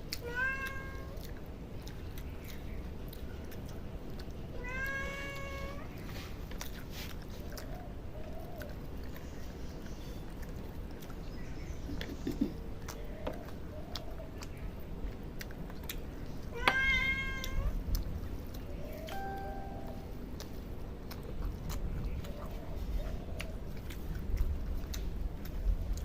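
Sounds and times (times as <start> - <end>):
cat meowing: 0.2 - 1.2, 4.6 - 5.9, 16.5 - 17.8.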